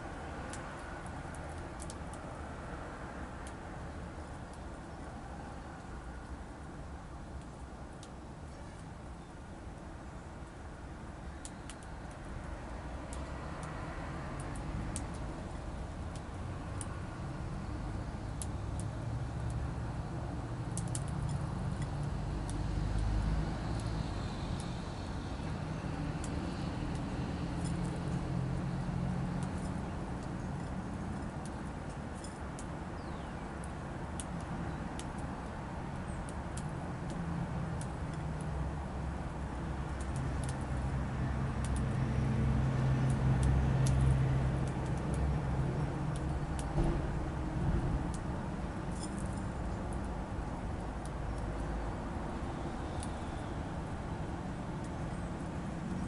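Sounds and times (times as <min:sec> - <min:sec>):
distant road traffic rumble: 0:00.0 - 0:56.0
small birds tapping at feeder: 0:11.2 - 0:56.0.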